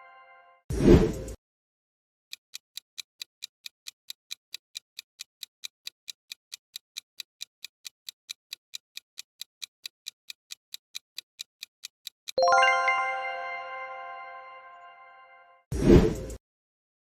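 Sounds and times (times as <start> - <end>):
clock ticking: 2.3 - 12.9.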